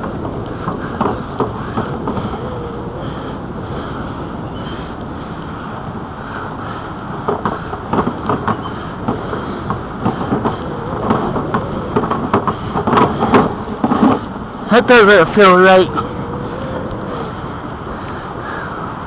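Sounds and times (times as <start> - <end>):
tyre and wind noise: 0.0 - 19.0.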